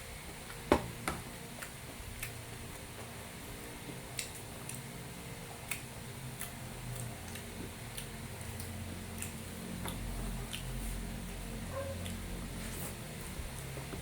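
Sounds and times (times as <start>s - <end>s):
person chewing food: 1.5s - 14.0s
mouth clicks and smacks: 4.1s - 4.9s, 5.6s - 10.8s.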